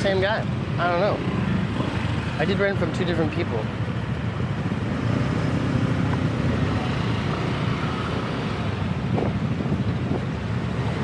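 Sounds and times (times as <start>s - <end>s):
road traffic: 0.0s - 11.0s
wind buffeting microphone: 3.1s - 11.0s.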